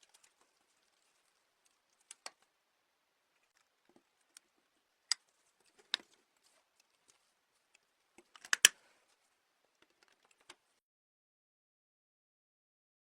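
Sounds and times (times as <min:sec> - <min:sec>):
small parts clicking and tapping: 0:05.1 - 0:08.8.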